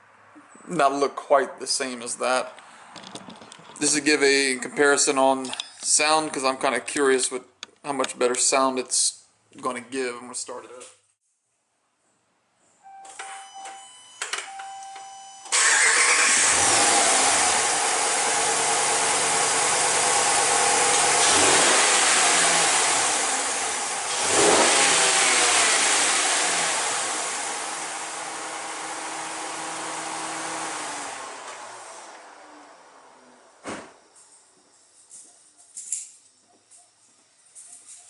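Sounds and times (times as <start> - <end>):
engine starting: 15.5 - 17.4
engine revving: 15.5 - 33.4
engine idling: 15.5 - 33.5.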